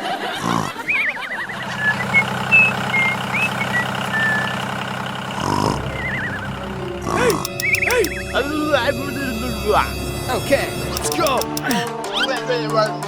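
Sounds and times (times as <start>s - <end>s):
small engine running: 5.3s - 11.9s.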